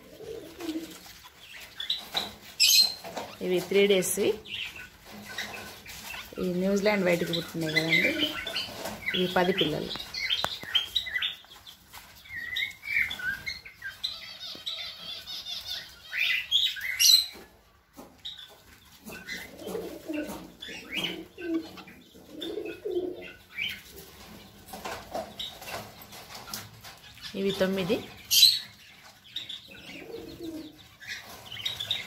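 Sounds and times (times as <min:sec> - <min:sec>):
bird cooing calls: 0:00.0 - 0:01.0, 0:19.1 - 0:24.0, 0:29.7 - 0:30.8
wings fluttering: 0:00.0 - 0:16.8.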